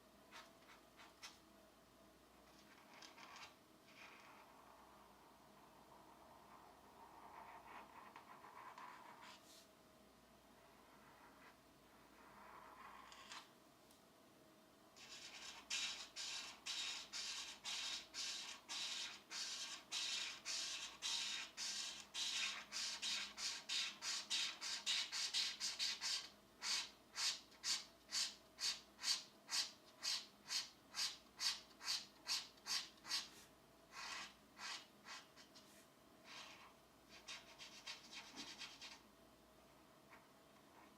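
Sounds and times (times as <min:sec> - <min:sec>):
colouring tool rubbing on paper: 0:15.0 - 0:39.0.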